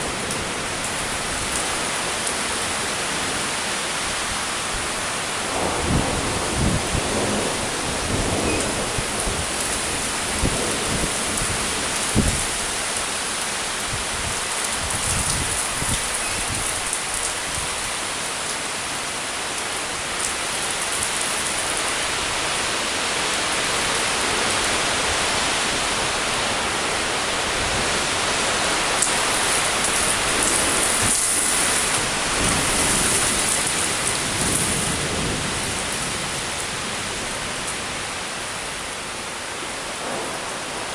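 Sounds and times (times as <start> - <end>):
heavy rain pouring: 0.0 - 40.9
low thunder rumbles: 5.4 - 12.7, 39.9 - 40.9.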